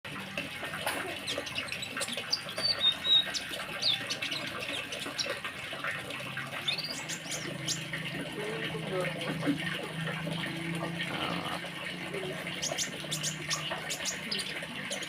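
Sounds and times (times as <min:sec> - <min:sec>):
running water hiss: 0:00.1 - 0:15.0.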